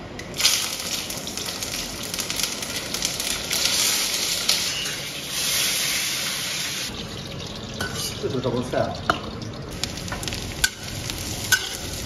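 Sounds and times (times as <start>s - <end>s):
peppers sizzling in hot oil: 0.3s - 12.0s
spatula turning food in wok: 10.2s - 12.0s.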